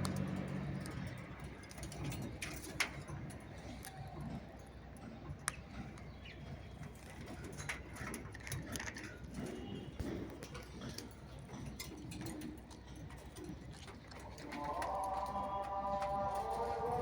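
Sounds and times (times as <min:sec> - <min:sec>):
clicks and taps of parrots eating: 0:04.7 - 0:16.6
parrots cooing: 0:14.1 - 0:17.0.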